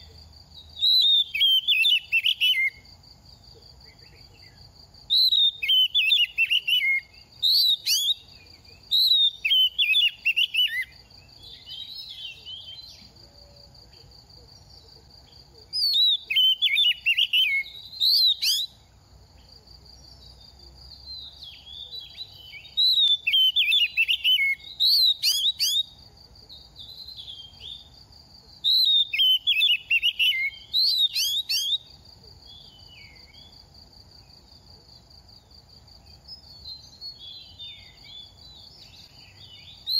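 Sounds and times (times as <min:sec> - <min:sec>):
bird singing whistled phrases: 0:00.8 - 0:02.8, 0:05.1 - 0:13.0, 0:15.8 - 0:18.8, 0:21.1 - 0:25.9, 0:26.8 - 0:27.9, 0:28.6 - 0:31.9.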